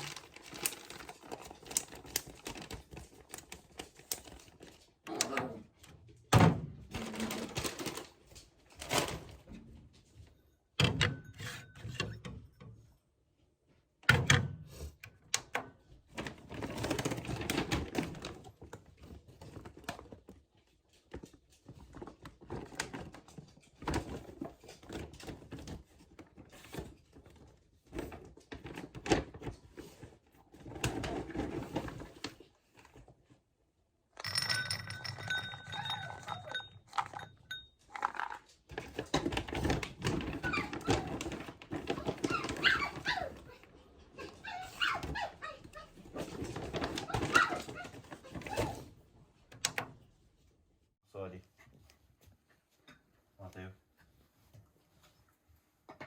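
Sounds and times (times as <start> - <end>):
dog moving with clicks and thumps: 15.4 - 33.4, 34.6 - 50.5
dog whining: 40.3 - 41.2, 41.9 - 48.9.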